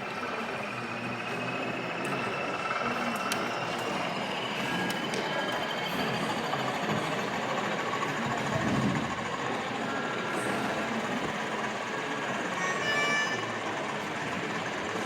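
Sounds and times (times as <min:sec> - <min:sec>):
model train rumbling: 0:00.0 - 0:15.0.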